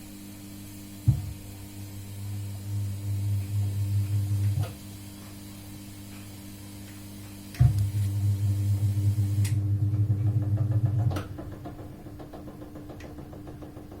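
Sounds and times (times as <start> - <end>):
washing machine motor hum: 0.0 - 14.0
washing machine thump: 1.0 - 1.5, 7.6 - 8.3, 9.7 - 14.0.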